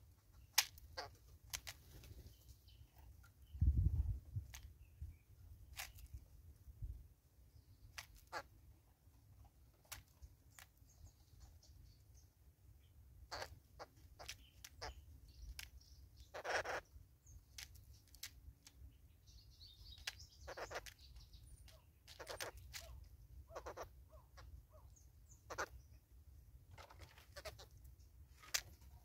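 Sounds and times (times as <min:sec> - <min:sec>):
birds pecking at feeder: 0:00.1 - 0:03.5, 0:04.2 - 0:06.4, 0:07.7 - 0:12.0, 0:13.2 - 0:29.0
harsh bird calls: 0:12.8 - 0:18.2, 0:19.0 - 0:26.0, 0:26.8 - 0:29.0.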